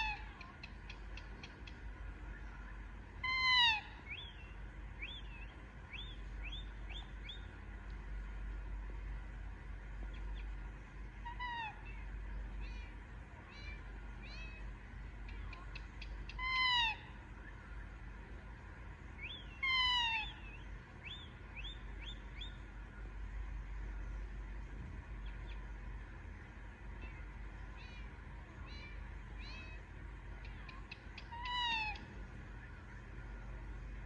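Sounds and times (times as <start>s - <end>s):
parakeet calling: 19.2s - 22.6s, 30.4s - 32.0s.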